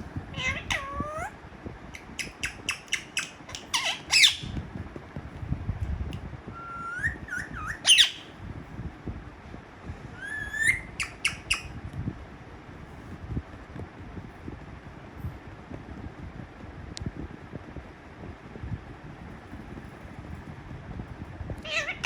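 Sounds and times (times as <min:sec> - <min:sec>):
parrot squawking: 0:00.3 - 0:01.3, 0:02.0 - 0:04.6, 0:06.6 - 0:08.3, 0:10.2 - 0:11.7, 0:21.6 - 0:22.0
parrot clicks and chirps: 0:02.0 - 0:04.6, 0:10.7 - 0:11.7
rising whistled calls: 0:02.2 - 0:04.5, 0:06.6 - 0:08.3, 0:10.2 - 0:11.7.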